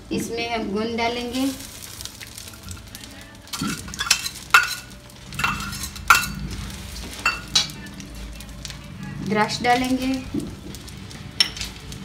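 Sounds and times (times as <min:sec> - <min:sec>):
spatula scraping a pan: 0:01.8 - 0:07.8.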